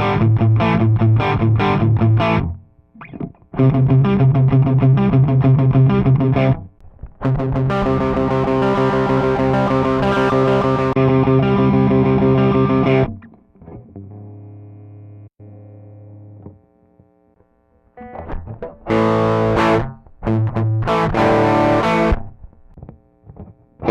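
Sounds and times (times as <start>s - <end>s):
distorted electric guitar: 0.0s - 23.9s.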